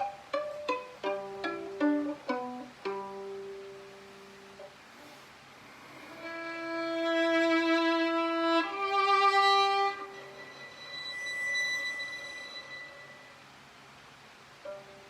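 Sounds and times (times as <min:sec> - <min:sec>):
violin playing sustained bowed notes: 0:00.0 - 0:04.0, 0:05.9 - 0:13.4.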